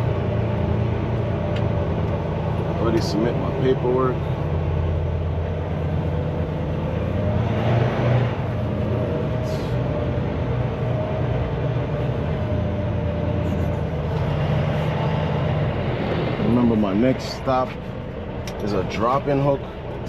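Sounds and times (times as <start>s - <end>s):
diesel truck engine humming: 0.0s - 20.0s.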